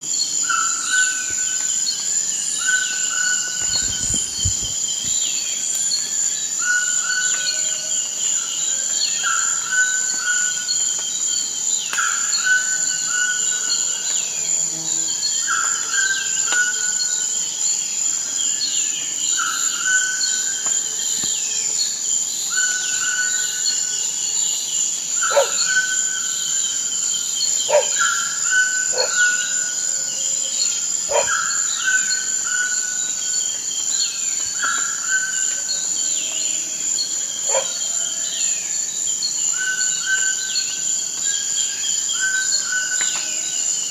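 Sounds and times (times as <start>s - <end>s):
high-pitched insect drone: 0.1s - 43.9s.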